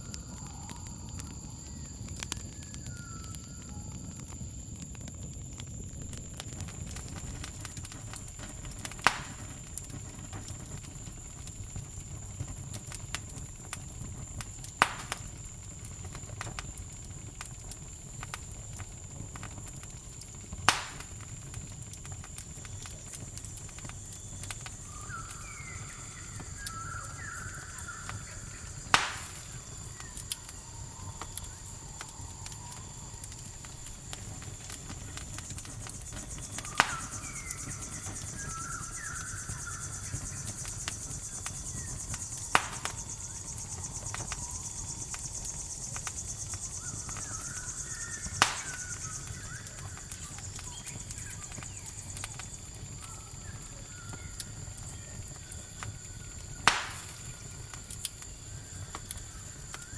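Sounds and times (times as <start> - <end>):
campfire crackling: 0.0 - 59.9
cricket trill: 0.0 - 59.9
loud fire pops: 0.0 - 59.9
chirping calls: 24.8 - 30.2.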